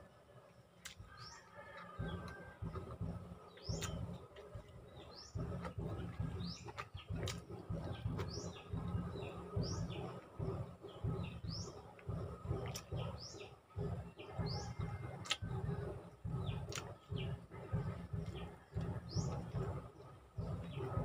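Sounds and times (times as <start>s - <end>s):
person chewing and lip-smacking: 0.8s - 1.2s, 1.8s - 4.7s, 5.4s - 9.0s, 12.0s - 13.1s, 14.8s - 19.8s
small bird chirping: 0.8s - 21.0s
sharp mouth clicks: 3.7s - 4.5s, 16.7s - 17.0s.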